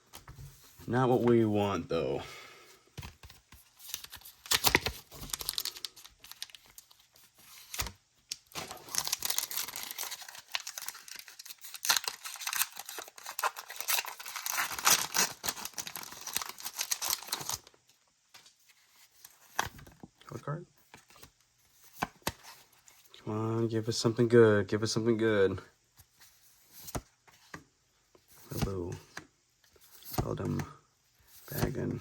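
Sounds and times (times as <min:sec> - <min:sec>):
foil wrapper tearing and crinkling: 0:04.0 - 0:07.0, 0:08.4 - 0:17.7.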